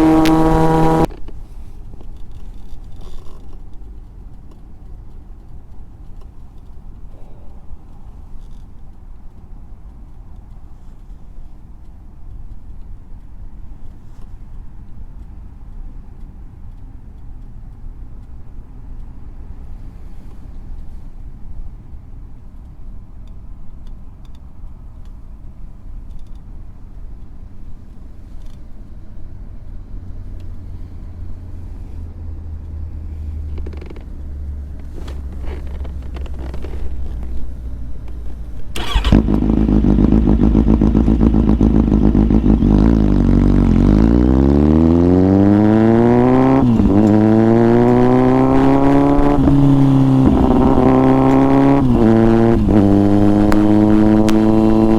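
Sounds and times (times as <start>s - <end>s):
loud engine revving: 0.0s - 1.1s, 38.8s - 54.9s
motorcycle engine idling: 38.7s - 43.9s.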